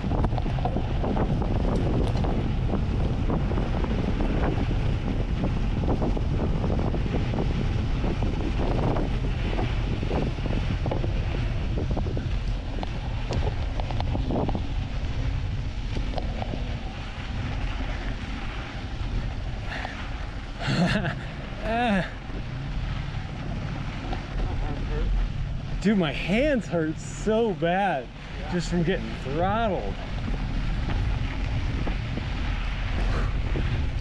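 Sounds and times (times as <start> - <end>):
bike rattling and knocking: 0.0 - 21.2
wind rushing over microphone: 0.0 - 34.0.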